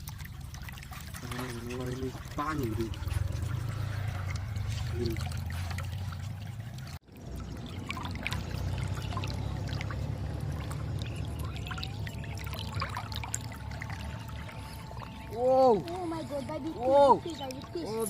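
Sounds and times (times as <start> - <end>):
water rushing through a culvert: 0.0 - 18.0.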